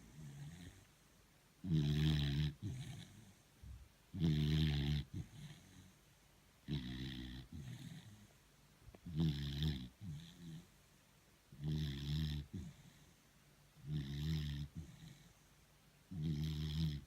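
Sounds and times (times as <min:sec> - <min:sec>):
dog snoring: 0:00.0 - 0:00.9, 0:01.6 - 0:03.4, 0:04.1 - 0:06.0, 0:06.6 - 0:08.3, 0:09.0 - 0:10.7, 0:11.5 - 0:13.2, 0:13.8 - 0:15.4, 0:16.1 - 0:17.0.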